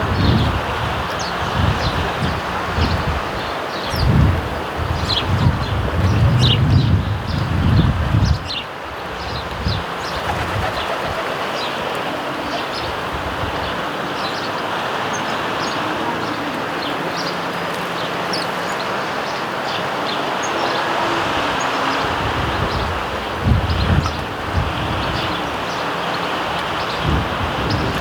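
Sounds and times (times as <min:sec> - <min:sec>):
sparrows chirping: 0:00.0 - 0:28.0.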